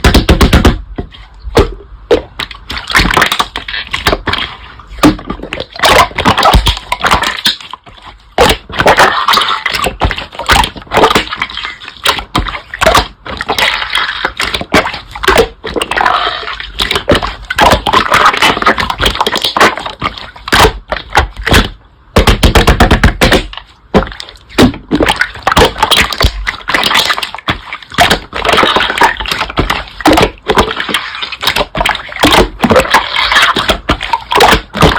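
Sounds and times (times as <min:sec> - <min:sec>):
slime squelches: 0:00.0 - 0:34.9.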